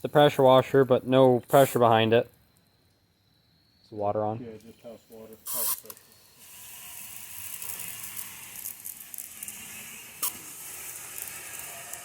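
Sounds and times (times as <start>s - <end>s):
water spraying on metal panel: 5.4s - 12.0s.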